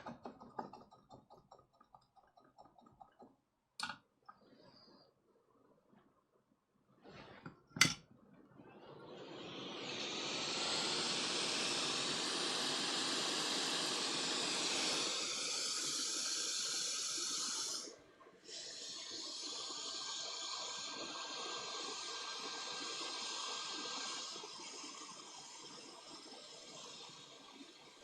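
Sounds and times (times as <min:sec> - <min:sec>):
hot air station hissing: 0:08.8 - 0:28.0.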